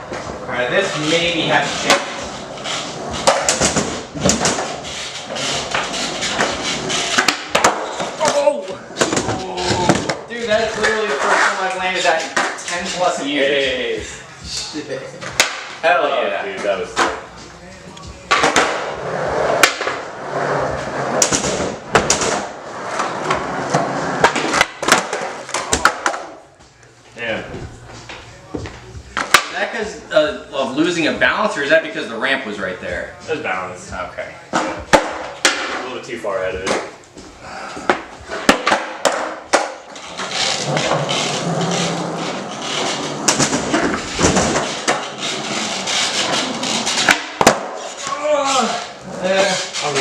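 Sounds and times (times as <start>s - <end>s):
skateboard wheels rolling: 0.0s - 13.1s, 18.3s - 26.2s, 37.9s - 50.0s
skateboard clacks: 5.4s - 10.2s
skateboard deck clacking on floor: 5.7s - 10.2s, 18.3s - 18.9s, 37.9s - 42.0s.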